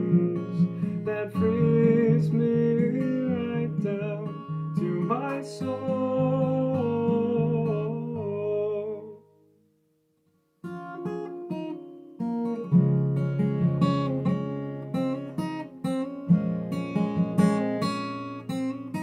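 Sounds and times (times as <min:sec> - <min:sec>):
acoustic guitar picking and strumming: 0:00.0 - 0:09.4, 0:10.6 - 0:19.0.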